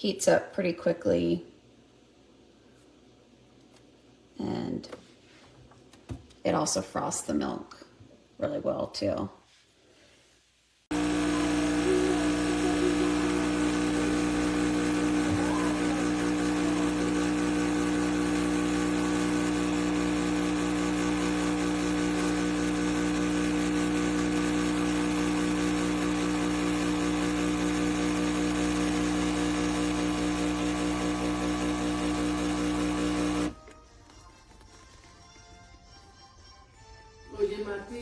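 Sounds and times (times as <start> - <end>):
pump buzzing: 10.9 - 33.6.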